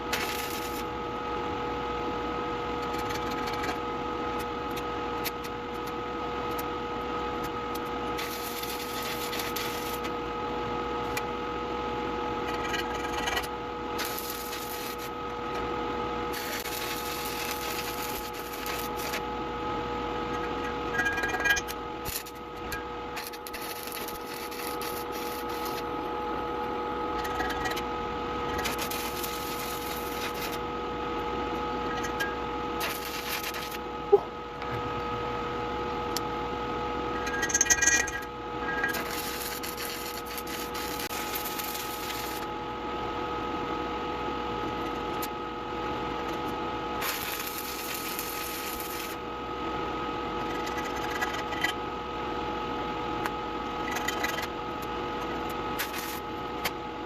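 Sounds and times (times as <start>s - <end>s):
welding hissing crackle: 0.0s - 0.9s, 7.4s - 10.2s, 12.6s - 15.2s, 16.3s - 19.3s, 21.2s - 26.1s, 28.5s - 30.6s, 32.8s - 33.8s, 38.8s - 42.5s, 47.0s - 49.2s, 55.8s - 56.7s
steady hum: 0.0s - 57.0s.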